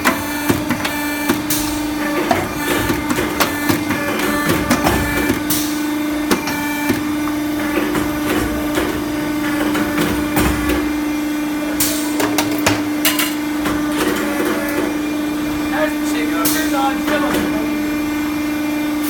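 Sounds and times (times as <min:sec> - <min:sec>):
machine clicks and knocks: 0:00.0 - 0:11.0
machine humming: 0:00.0 - 0:19.0.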